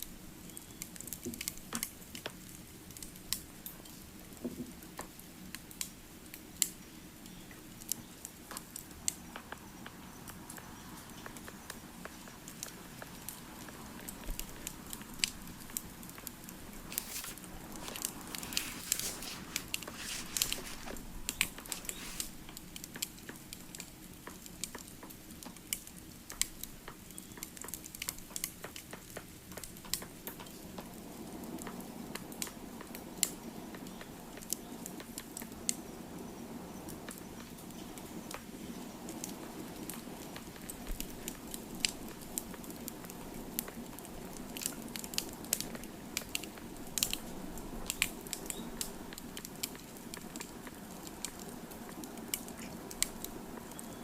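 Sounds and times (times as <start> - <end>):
wood fire crackling and popping: 11.7 - 33.3, 39.1 - 54.0
soft rushing of flame: 14.4 - 23.0.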